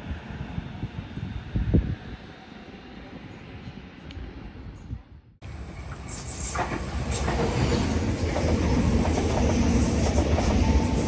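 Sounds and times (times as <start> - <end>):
train wheels rumbling on rails: 5.4 - 11.0.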